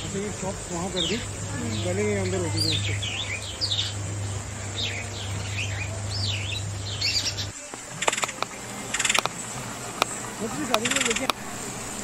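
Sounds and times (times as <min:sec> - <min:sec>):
birds chirping: 0:00.0 - 0:12.0
steady low hum: 0:00.0 - 0:12.0
sharp clicks: 0:08.0 - 0:09.4, 0:10.0 - 0:11.4.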